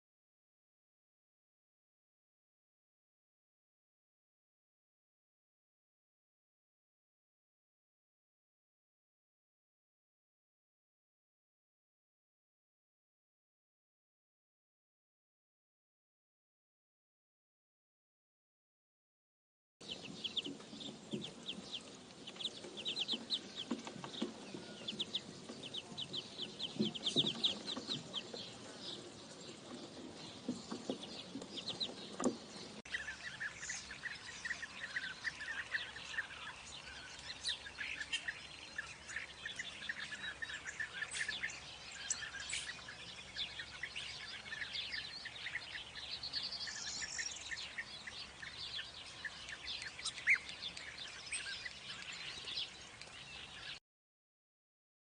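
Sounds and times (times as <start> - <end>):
birds chirping and calling: 19.8 - 53.8.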